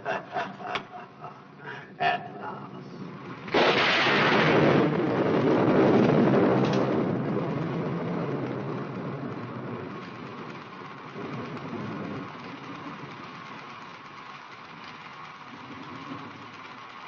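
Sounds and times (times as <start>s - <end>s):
thunderclap rumbling: 2.4s - 13.9s.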